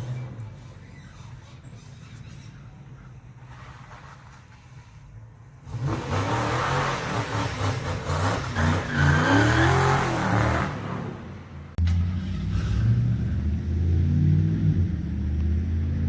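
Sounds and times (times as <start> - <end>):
car engine revving: 5.6 - 16.0.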